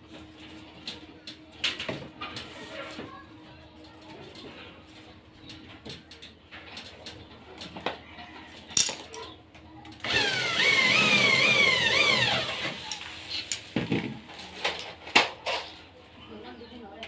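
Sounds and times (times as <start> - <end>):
motor revving: 10.0 - 12.9.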